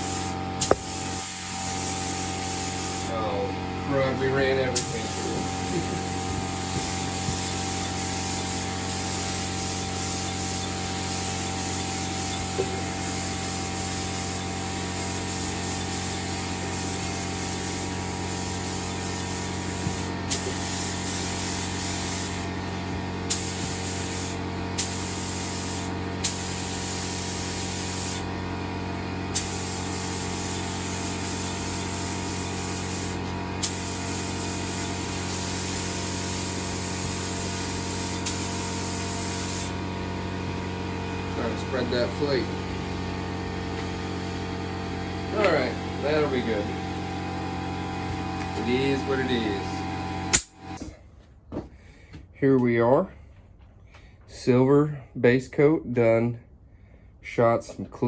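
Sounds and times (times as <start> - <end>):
spray gun hissing: 0.0 - 50.8
steady low hum: 0.0 - 51.2
spray gun trigger clicks: 0.6 - 0.9, 50.3 - 50.6.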